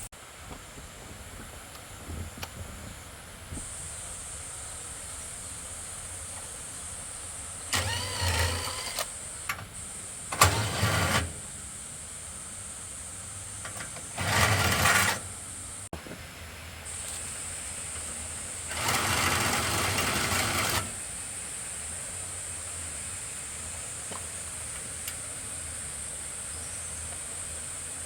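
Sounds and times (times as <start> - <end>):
motor running in bursts: 7.7 - 9.3, 10.3 - 11.5, 13.8 - 15.4, 18.5 - 21.1.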